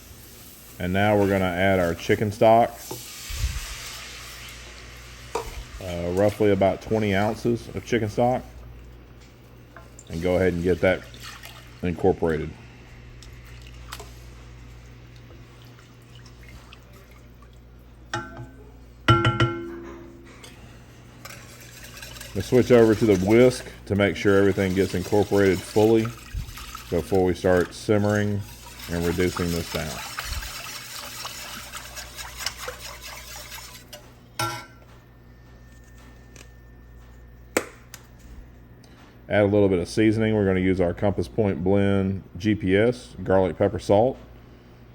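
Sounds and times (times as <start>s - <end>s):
steady low hum: 4.7s - 30.9s, 31.7s - 44.9s
liquid sloshing and dripping: 9.7s - 11.8s, 13.1s - 18.5s, 21.2s - 34.0s
whisk clinking against pot: 21.2s - 34.6s.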